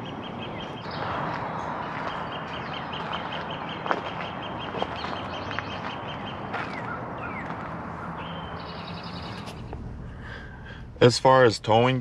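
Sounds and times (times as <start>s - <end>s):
rising bird chirps: 0.0s - 10.6s
low hum: 5.3s - 11.8s.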